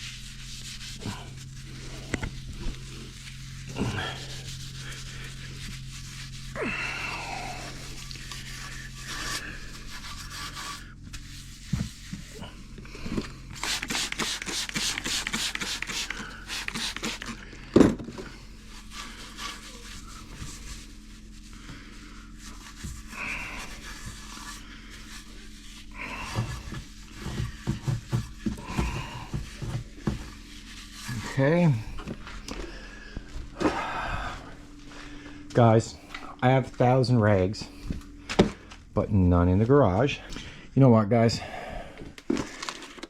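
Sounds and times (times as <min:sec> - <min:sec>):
soap pad scrubbing metal pipe: 0:00.0 - 0:12.7, 0:13.5 - 0:17.6, 0:18.2 - 0:34.6.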